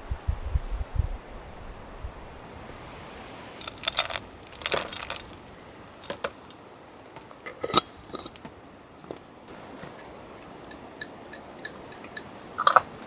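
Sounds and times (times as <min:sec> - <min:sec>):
small hard items clinking: 0:03.6 - 0:09.4.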